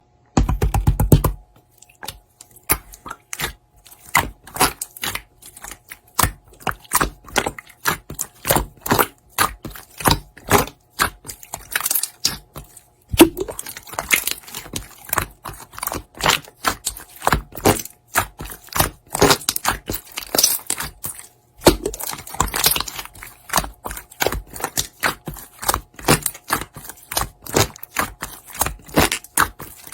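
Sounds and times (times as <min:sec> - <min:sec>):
sharp clicks taps and crackles: 0:00.4 - 0:01.4.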